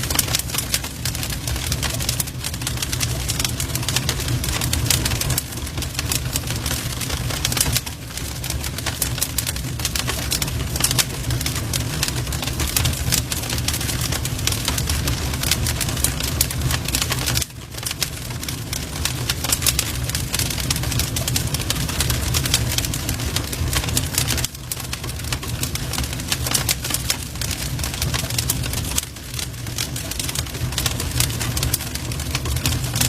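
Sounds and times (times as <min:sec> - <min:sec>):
low rumble of flames: 0:00.0 - 0:33.0
wood fire crackling and popping: 0:00.0 - 0:33.0.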